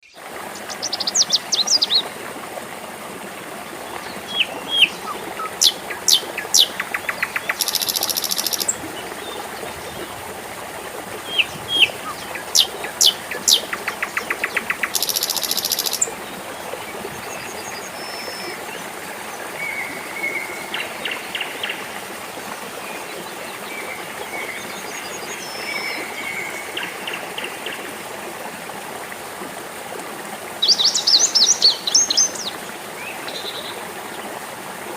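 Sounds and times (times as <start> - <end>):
water trickling: 0.1 - 34.9
soft bird chirps: 4.3 - 8.7, 14.9 - 16.0
bird whistles and buzzy trills: 4.3 - 8.8, 14.6 - 16.1.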